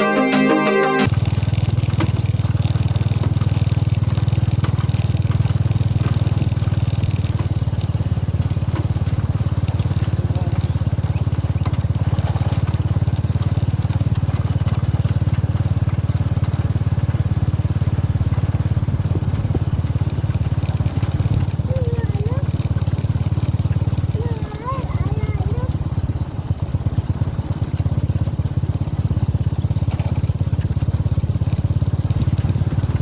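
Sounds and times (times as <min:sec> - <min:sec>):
vehicle engine rumble: 0:01.0 - 0:33.0.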